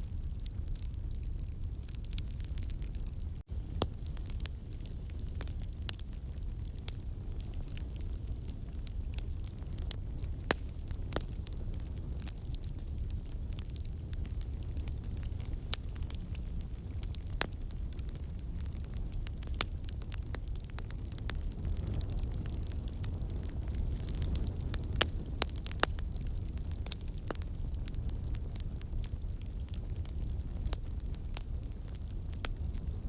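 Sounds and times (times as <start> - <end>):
fire crackling and popping: 0.0 - 33.0.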